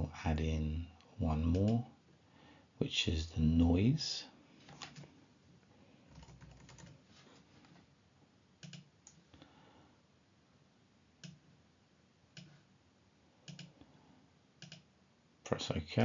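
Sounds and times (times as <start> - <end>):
computer mouse clicks: 8.6 - 9.2, 11.2 - 11.4, 13.4 - 13.8, 14.6 - 14.9.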